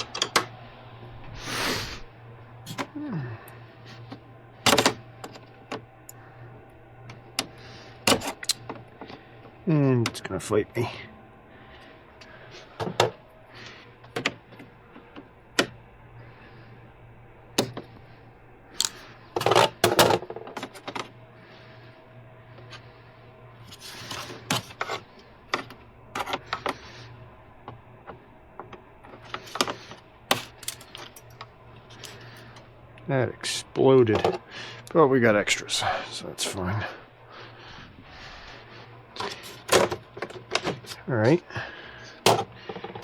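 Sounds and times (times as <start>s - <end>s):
hand tools clicking on parts: 18.8s - 21.0s, 29.1s - 32.2s.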